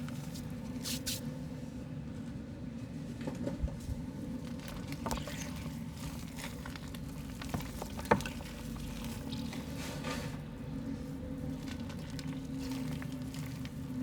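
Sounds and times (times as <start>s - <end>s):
small wet splashes: 4.6s - 9.8s, 11.5s - 14.0s.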